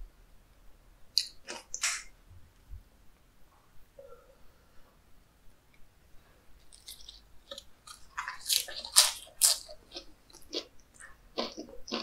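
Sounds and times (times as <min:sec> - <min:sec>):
crisp crunching of lettuce: 0:06.7 - 0:12.0.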